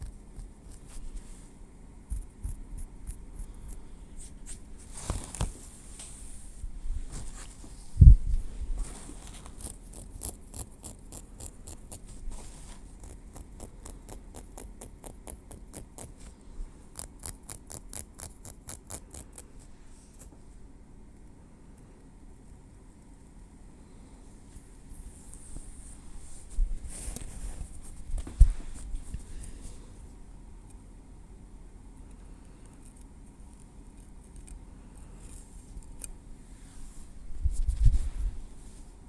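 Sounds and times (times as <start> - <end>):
tweezers ticking and scratching: 9.5 - 12.1, 13.0 - 16.2, 17.0 - 19.4.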